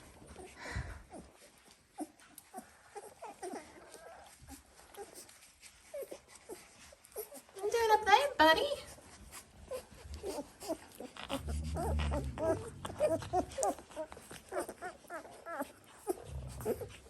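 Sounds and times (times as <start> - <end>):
puppies squeaking and whimpering: 0.0 - 8.1, 8.9 - 17.0
low rumble: 11.3 - 14.0.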